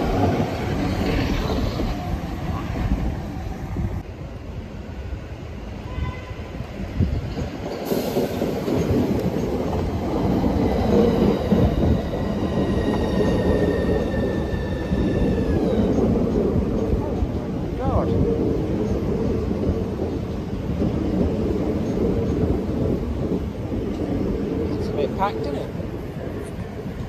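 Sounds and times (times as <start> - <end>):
electric train arriving: 0.0 - 27.0
high falling train whine: 7.9 - 27.0.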